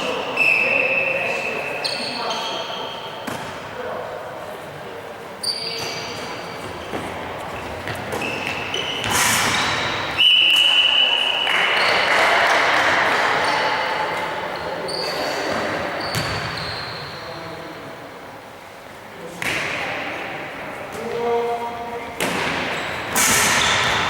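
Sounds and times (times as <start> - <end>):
sneakers squeaking on floor: 0.0 - 3.6, 5.4 - 12.2, 14.5 - 17.5, 22.2 - 24.0
players' voices: 0.0 - 24.0
whistle blast: 0.4 - 1.3, 9.5 - 11.9
ball bouncing: 16.1 - 16.5.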